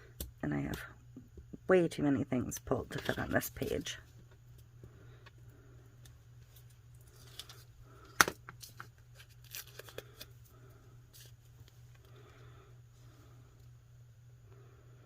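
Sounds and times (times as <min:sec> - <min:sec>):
paper rustling and crinkling: 0:08.6 - 0:10.4.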